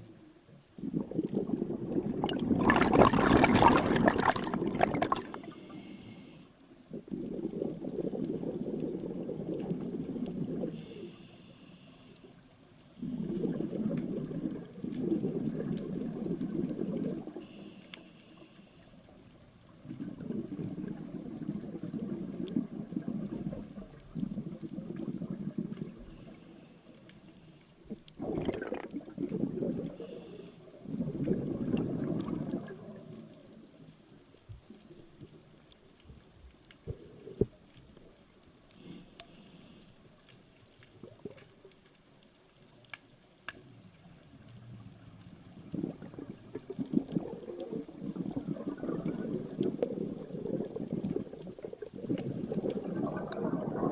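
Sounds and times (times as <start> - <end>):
exhaled air bubbles: 0.0 - 11.4, 12.8 - 18.0, 19.5 - 41.9, 43.5 - 53.9
faint water noise: 0.0 - 53.9
regulator hiss: 5.4 - 6.5, 10.8 - 12.3
small clicks: 32.1 - 45.7.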